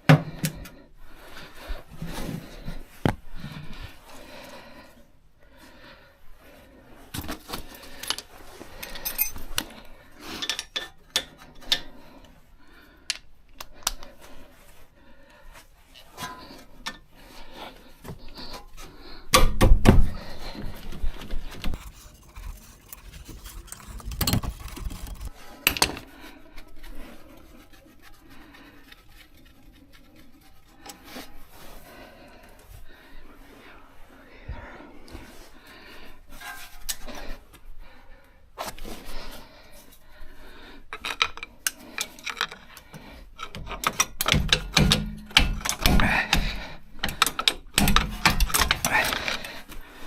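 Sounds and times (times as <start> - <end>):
metal tools clinking: 8.8 - 9.6.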